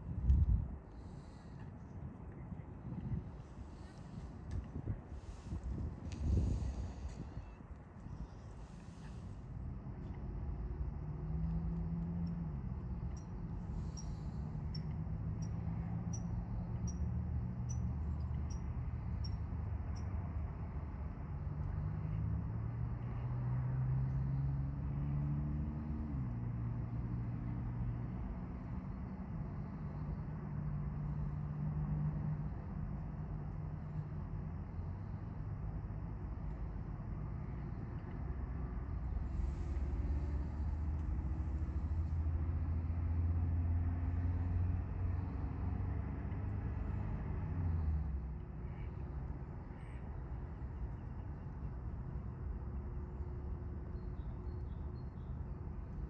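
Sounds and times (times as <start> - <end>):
low engine rumble: 0.0 - 20.0, 34.7 - 55.0.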